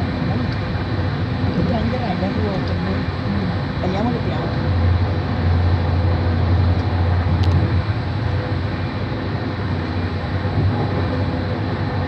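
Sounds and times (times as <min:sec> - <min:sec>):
train rumbling: 0:00.0 - 0:12.0
click: 0:06.8 - 0:07.6.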